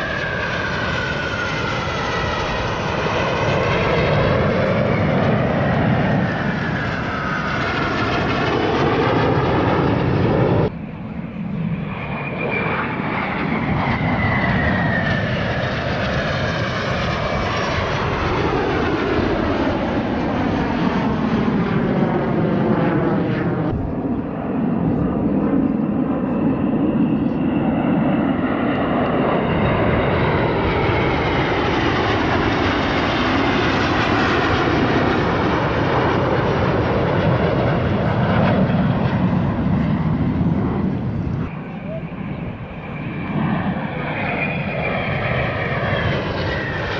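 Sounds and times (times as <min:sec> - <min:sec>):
jet turbine whine: 0:00.0 - 0:46.9
jets flying past: 0:00.0 - 0:46.9.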